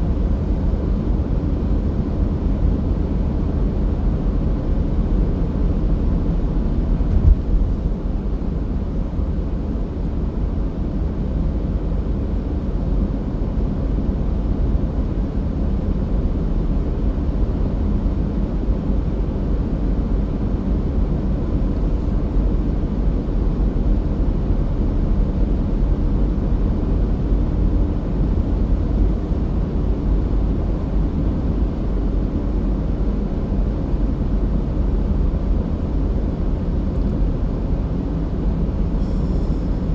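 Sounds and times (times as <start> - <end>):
car driving rumble: 7.0 - 10.2
car bump: 7.1 - 7.8.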